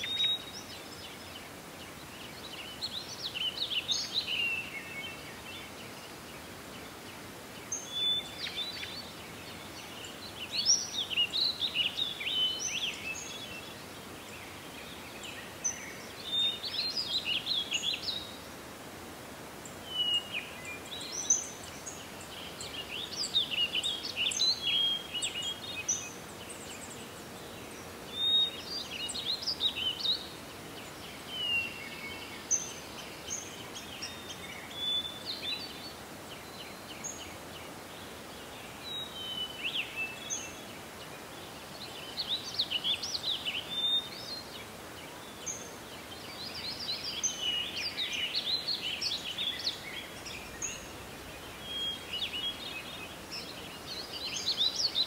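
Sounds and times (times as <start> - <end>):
outdoor background hiss: 0.0 - 55.0
songbirds singing and chirping: 0.0 - 55.0.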